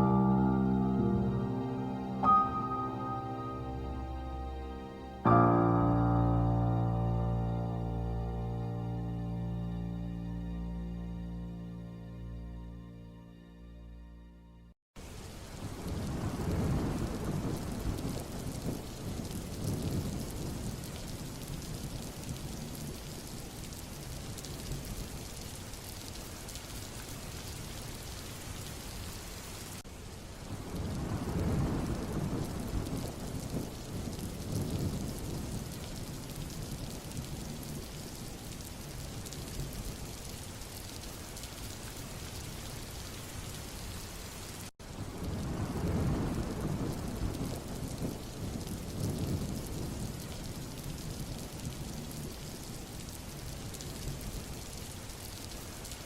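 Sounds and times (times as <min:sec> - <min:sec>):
steady rain hiss: 0:00.0 - 0:12.2, 0:15.0 - 0:56.0
rolling thunder: 0:15.6 - 0:23.1, 0:30.5 - 0:38.4, 0:44.9 - 0:54.5.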